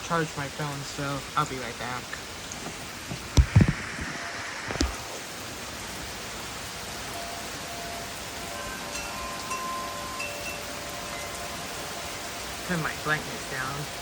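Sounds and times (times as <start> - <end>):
steady rain: 0.0 - 14.0
loud knocks: 3.1 - 5.0
wind chimes ringing: 7.1 - 12.7.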